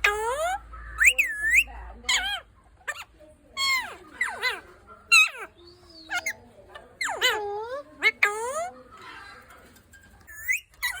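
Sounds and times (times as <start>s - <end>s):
parrot squawking calls: 0.0s - 9.4s, 10.3s - 11.0s.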